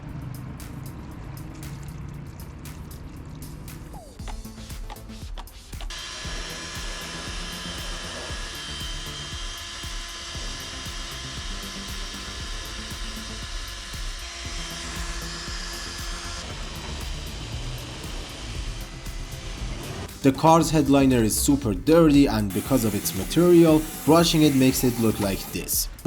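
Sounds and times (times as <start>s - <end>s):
background music: 0.0s - 26.0s
power drill motor whining: 5.9s - 20.2s, 22.3s - 26.0s.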